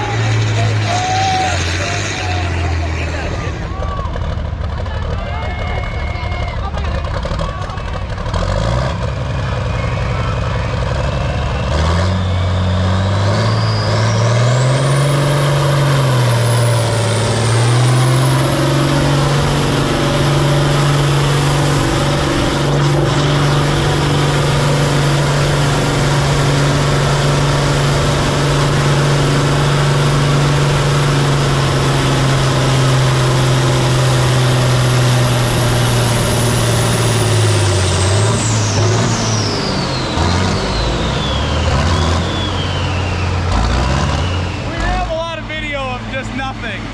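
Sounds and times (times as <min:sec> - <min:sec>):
diesel tractor engine under load: 0:00.0 - 0:46.9
turbo whistle whine: 0:11.4 - 0:15.2.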